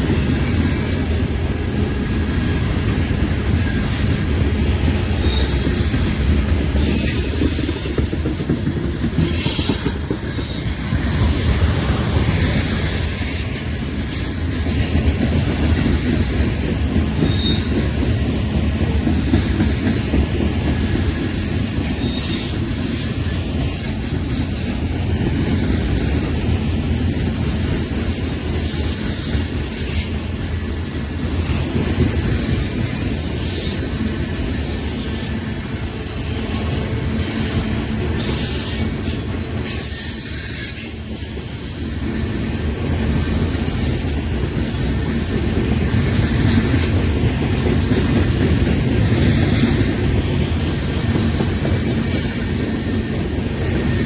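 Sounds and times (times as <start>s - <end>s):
train wheels rumbling on rails: 0.0s - 54.0s
high-pitched wheel squeal: 5.1s - 6.2s, 17.2s - 17.8s, 21.9s - 22.6s.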